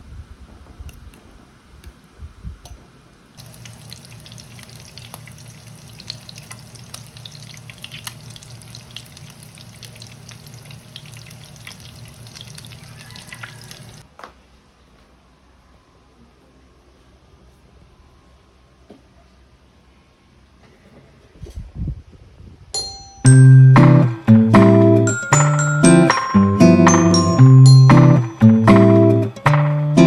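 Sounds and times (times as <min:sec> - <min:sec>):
tap water running into sink: 0:03.4 - 0:14.0.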